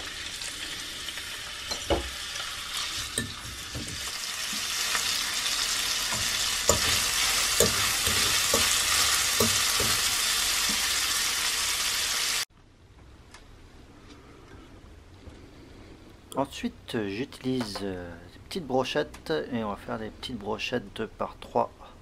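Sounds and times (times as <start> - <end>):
chicken sizzling in oil: 0.0 - 12.5
metal fork scraping a pan: 6.1 - 10.9.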